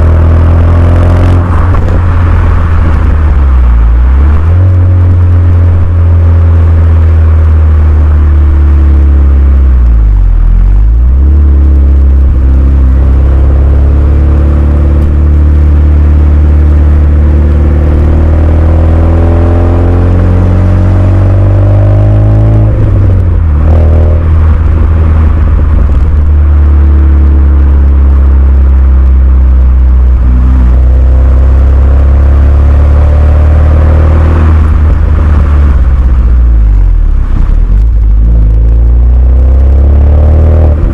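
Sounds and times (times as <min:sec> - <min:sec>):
car engine revving while driving: 0:00.0 - 0:40.9.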